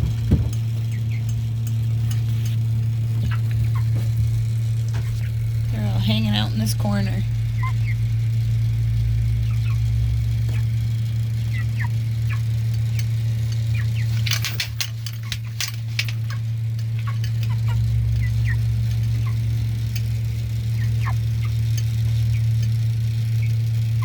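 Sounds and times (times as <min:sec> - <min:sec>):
chickens peeping: 0:00.0 - 0:08.1, 0:09.3 - 0:14.2, 0:16.2 - 0:23.6
loud steady low hum: 0:00.0 - 0:24.0
clicks and rustling: 0:12.7 - 0:18.2.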